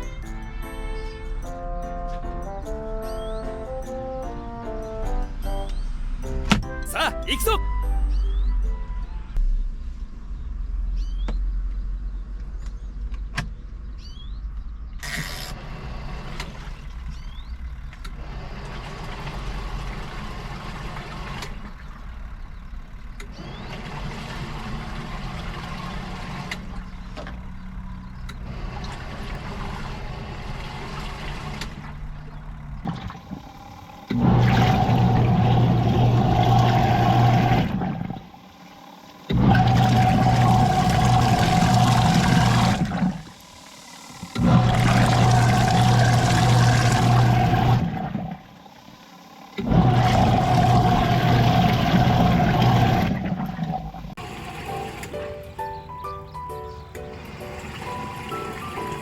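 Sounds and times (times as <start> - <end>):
loud steady motor hum: 15.6 - 55.2
washing machine motor running: 15.6 - 55.6, 57.1 - 59.0.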